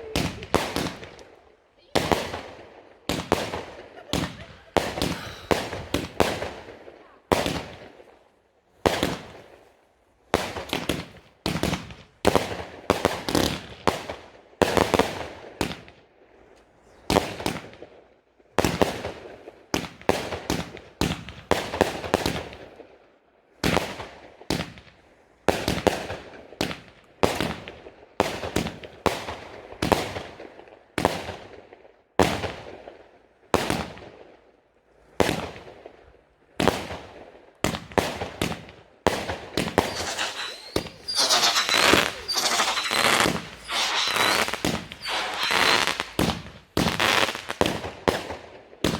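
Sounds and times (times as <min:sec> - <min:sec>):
fireworks exploding: 0:00.0 - 0:01.3, 0:01.9 - 0:07.9, 0:37.7 - 0:48.9.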